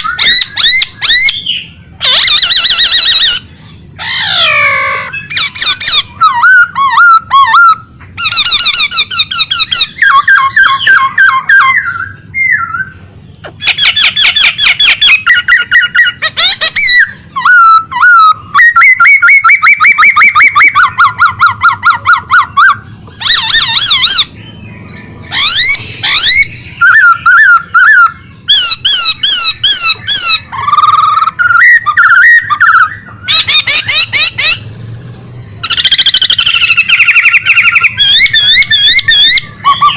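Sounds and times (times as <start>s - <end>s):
songbird singing trills: 0.0s - 39.9s.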